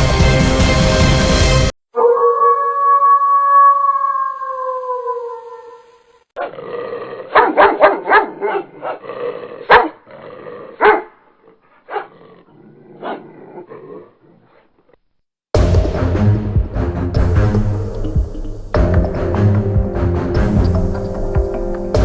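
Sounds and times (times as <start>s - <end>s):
dog barking: 7.3s - 9.0s, 9.6s - 10.0s, 10.8s - 11.2s, 11.8s - 12.2s
held tone: 17.2s - 22.0s.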